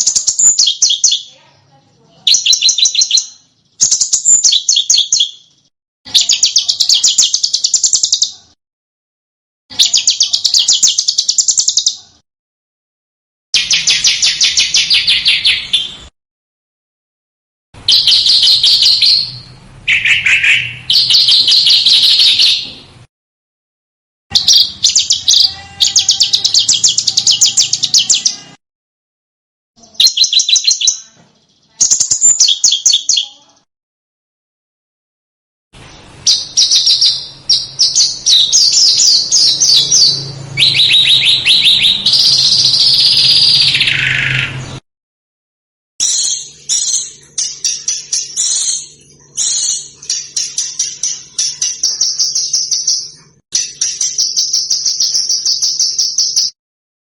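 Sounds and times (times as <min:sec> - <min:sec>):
songbird chirping trills: 0:00.0 - 0:08.5, 0:09.7 - 0:12.2, 0:17.8 - 0:22.9, 0:24.3 - 0:28.6, 0:29.8 - 0:33.6, 0:36.0 - 0:44.8.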